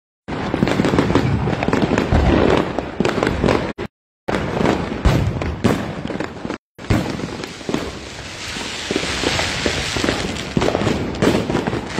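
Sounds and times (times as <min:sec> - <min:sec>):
fireworks crackling and banging: 0:00.3 - 0:11.9.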